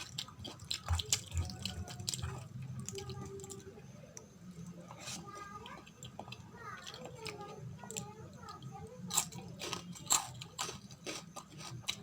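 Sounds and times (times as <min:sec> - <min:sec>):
wet chewing: 0:00.0 - 0:03.8, 0:04.7 - 0:12.0.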